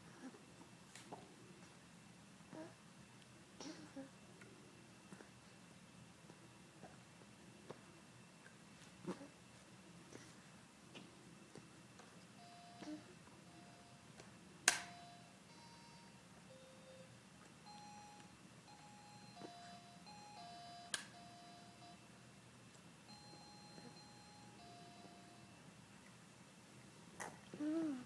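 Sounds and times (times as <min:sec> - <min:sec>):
toy piano beep tones: 0:12.4 - 0:14.1, 0:14.8 - 0:22.0, 0:23.1 - 0:25.6.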